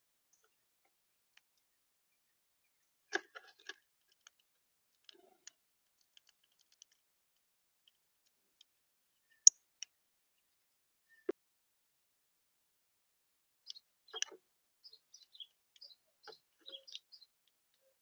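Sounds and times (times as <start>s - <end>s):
birds pecking at seed feeder: 3.1s - 8.0s.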